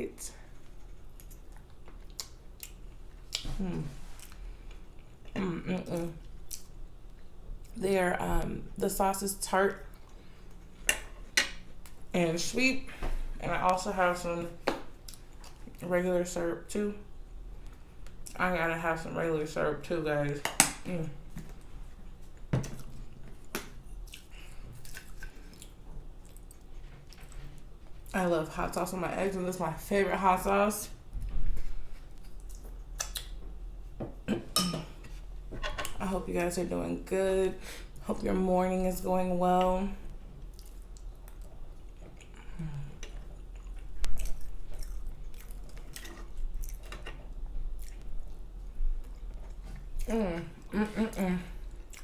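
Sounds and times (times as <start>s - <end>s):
wet chewing sounds: 0.4s - 5.4s, 14.8s - 15.8s, 21.4s - 28.1s, 31.6s - 33.5s, 40.3s - 50.7s, 51.6s - 52.0s.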